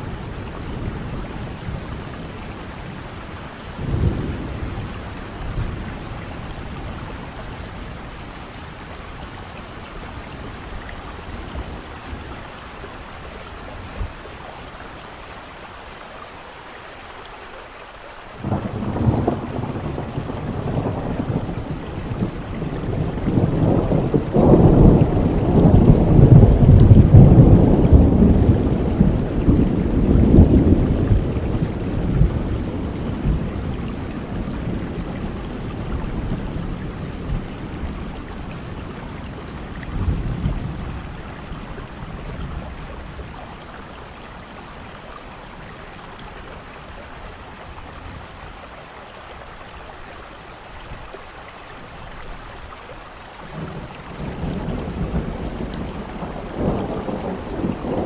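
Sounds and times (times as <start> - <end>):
rolling thunder: 0.0 - 9.0, 18.4 - 44.4, 53.5 - 58.0
steady rain falling: 0.0 - 58.0.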